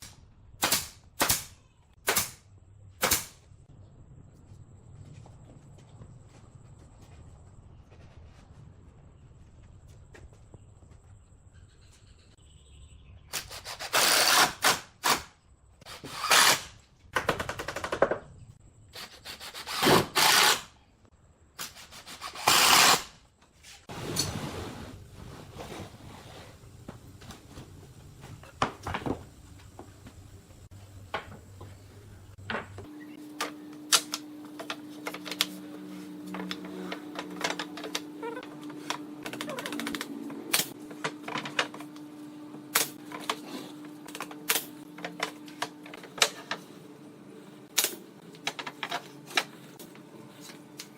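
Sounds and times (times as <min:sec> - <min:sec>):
steady hum: 0:26.6 - 0:50.9.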